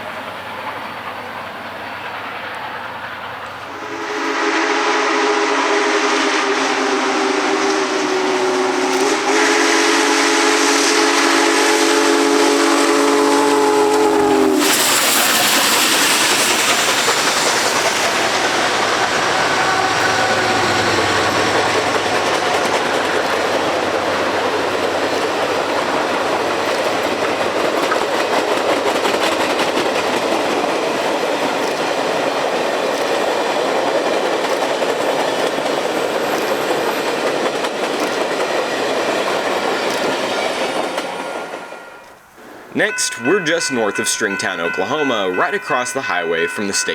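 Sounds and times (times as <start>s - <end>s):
steam train passing: 0.0s - 46.9s
steam whistle blowing: 3.7s - 24.5s
wheels clicking over rail joints: 13.9s - 46.9s.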